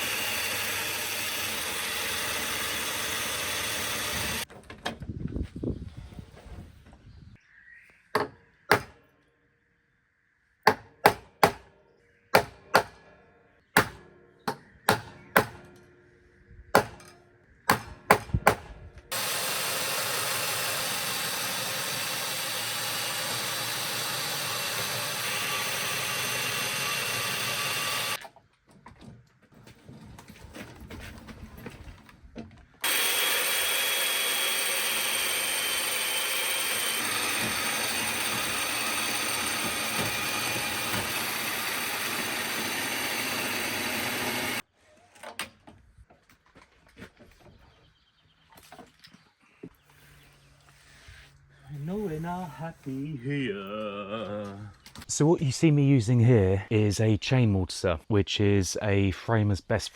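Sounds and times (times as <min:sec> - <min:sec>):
chain mortiser running: 0:00.0 - 0:04.5, 0:19.1 - 0:28.2, 0:32.8 - 0:44.6
sharp knocks on timber: 0:10.7 - 0:11.6.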